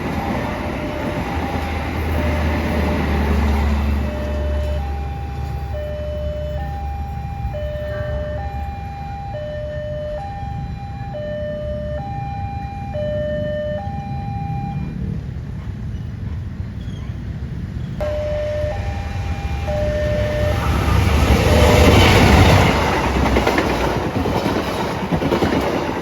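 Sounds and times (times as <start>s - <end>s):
train rumbling past: 0.0s - 12.1s, 12.8s - 26.0s
two-tone warning signal: 0.0s - 15.0s, 18.0s - 23.6s.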